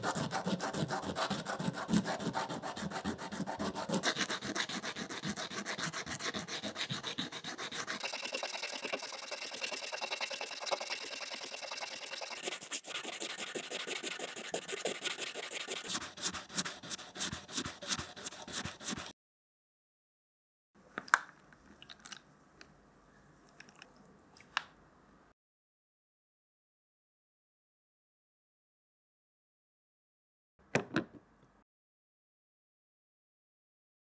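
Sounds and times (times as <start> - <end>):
sandpaper rubbing on tusk: 0.0 - 19.1.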